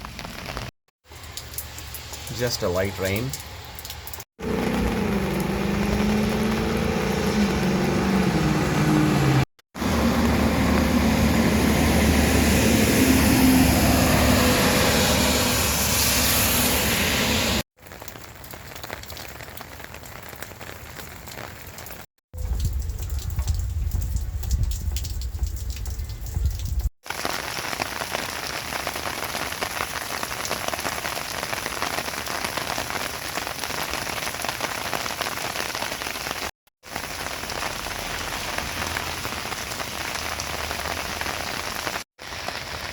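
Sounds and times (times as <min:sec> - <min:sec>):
rain falling: 0:00.0 - 0:42.9
deep low rumble: 0:22.4 - 0:26.9.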